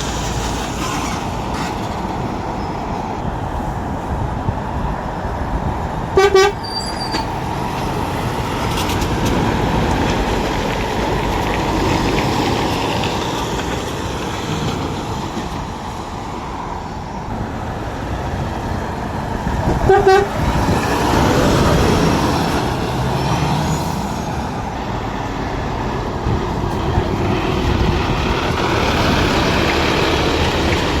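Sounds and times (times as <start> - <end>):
road traffic noise: 0.0 - 31.0
vehicle horn toot: 6.2 - 7.1, 19.8 - 20.4.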